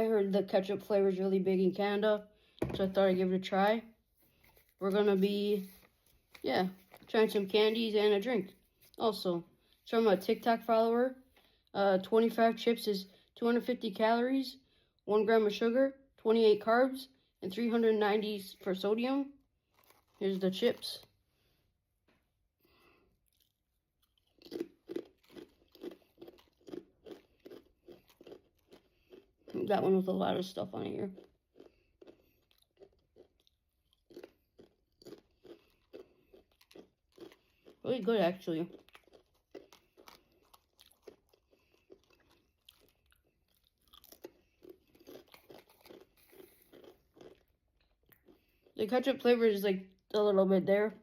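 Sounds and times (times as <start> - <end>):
person chewing crisp chip: 19.4 - 21.2, 22.6 - 29.8, 30.8 - 48.8.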